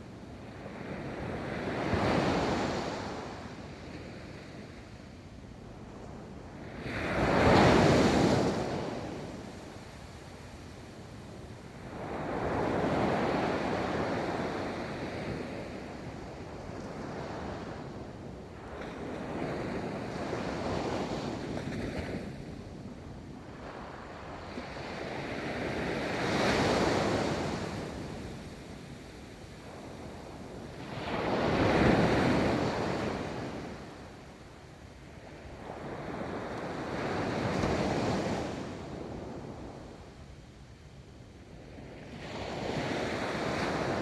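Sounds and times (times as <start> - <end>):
ocean waves breaking on a beach: 6.6 - 34.4.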